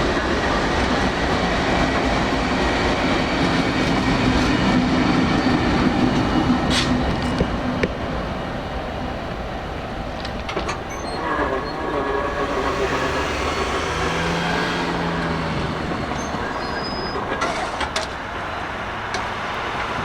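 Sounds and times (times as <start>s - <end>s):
train wheels rumbling on rail: 0.0s - 20.0s
brief high wheel squeals: 10.7s - 18.0s.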